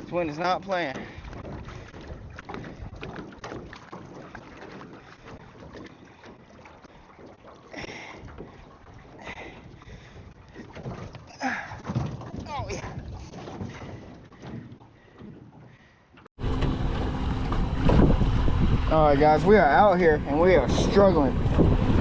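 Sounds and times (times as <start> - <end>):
wind buffeting microphone: 0.0 - 3.8, 16.4 - 22.0
water knocking against metal boat hull: 0.0 - 15.8.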